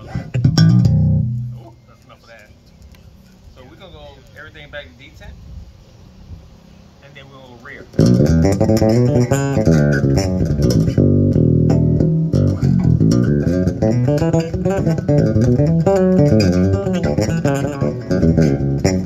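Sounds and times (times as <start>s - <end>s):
electric bass guitar playing: 0.0s - 1.8s, 8.0s - 19.0s.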